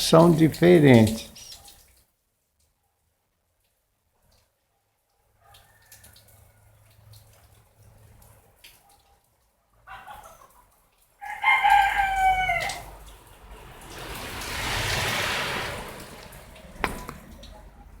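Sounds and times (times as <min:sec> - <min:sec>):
rooster crowing: 0:11.2 - 0:13.1
broad rushing noise: 0:13.1 - 0:18.0.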